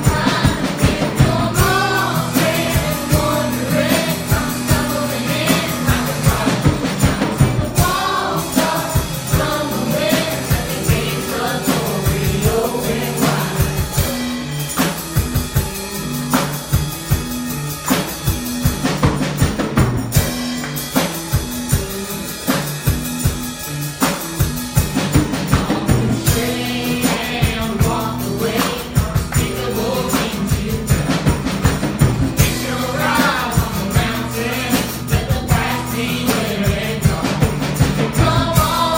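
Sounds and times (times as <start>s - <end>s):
congregation singing: 0.0s - 15.0s, 25.4s - 38.9s
gospel band playing: 0.0s - 38.9s.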